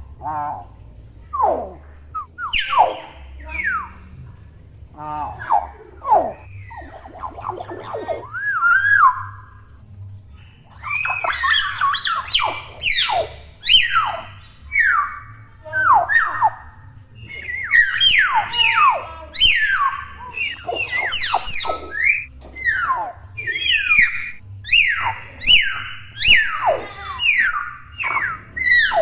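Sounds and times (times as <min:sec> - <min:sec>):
myna bird calling: 0:01.3 - 0:04.1, 0:10.8 - 0:29.0.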